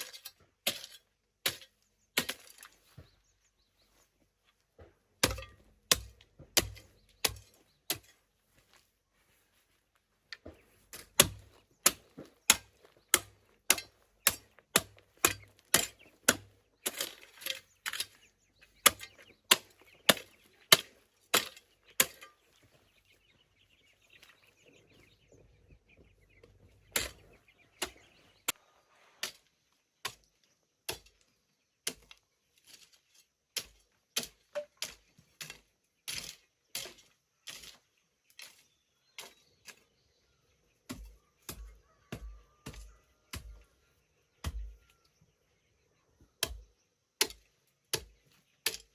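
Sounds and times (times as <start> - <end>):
hand tool chopping strikes: 5.2 - 8.1, 11.0 - 17.2, 44.4 - 44.8, 46.4 - 48.1.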